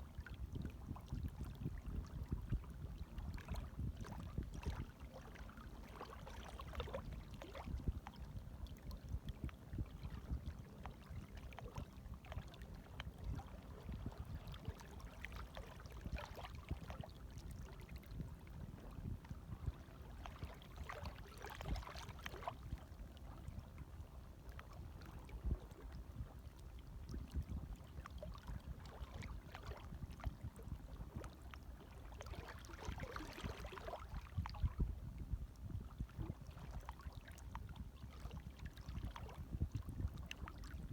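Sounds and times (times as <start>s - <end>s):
water splashes: 19.5s - 23.4s, 27.3s - 34.8s.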